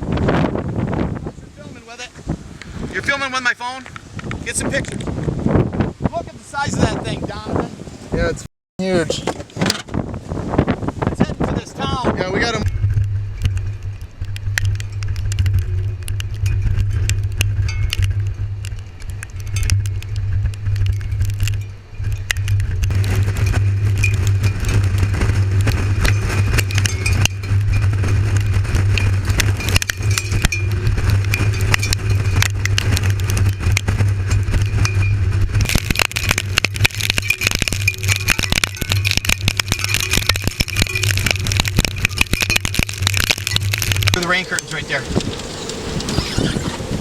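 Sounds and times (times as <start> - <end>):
road and engine drone: 0.0 - 47.0
ticks and rattles: 11.9 - 47.0.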